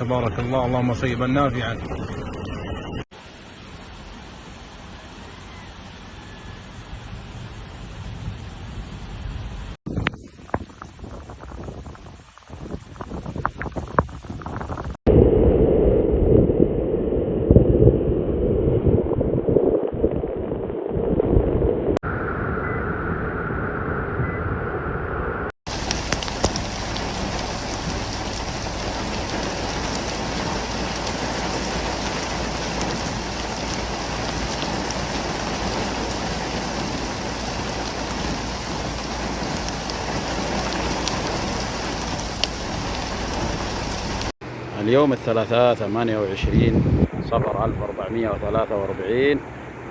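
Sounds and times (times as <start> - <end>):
heavy rain hissing: 1.0 - 15.0, 25.7 - 49.9.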